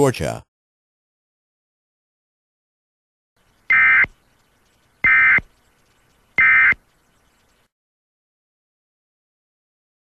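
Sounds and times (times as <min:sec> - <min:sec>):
two-tone digital data screech: 0:03.7 - 0:04.1, 0:05.0 - 0:05.4, 0:06.4 - 0:06.8.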